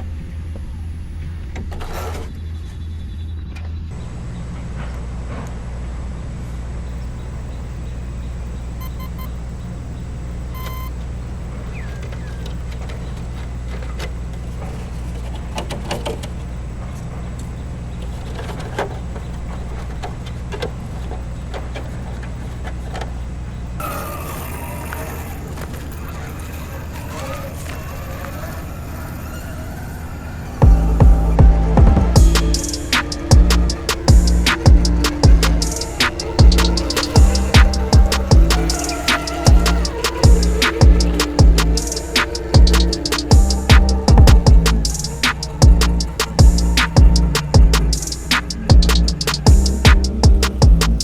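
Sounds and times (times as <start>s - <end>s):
electric motor and gearbox whirring: 6.9s - 51.0s
clicks and knocks from chassis: 10.6s - 51.0s.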